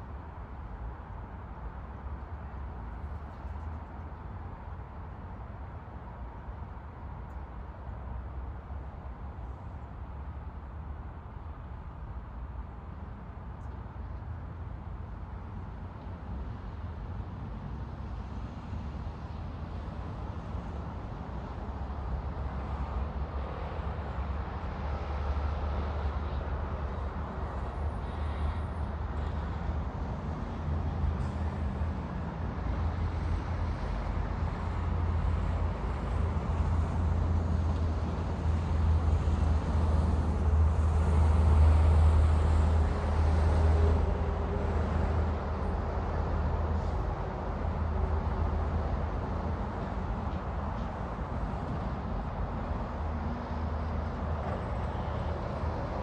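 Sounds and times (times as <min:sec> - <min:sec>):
road traffic rumbling: 0:16.1 - 0:56.0.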